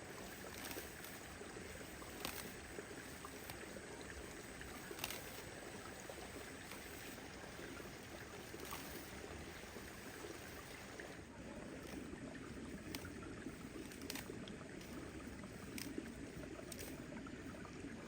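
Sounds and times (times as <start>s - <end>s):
water washing faintly: 0.0s - 18.0s
light clicks: 4.9s - 5.4s.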